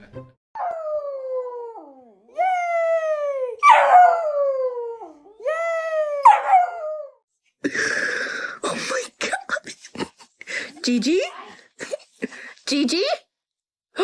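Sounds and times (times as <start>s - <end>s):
dog howling: 0.6s - 7.2s
dog yowling: 0.6s - 7.2s.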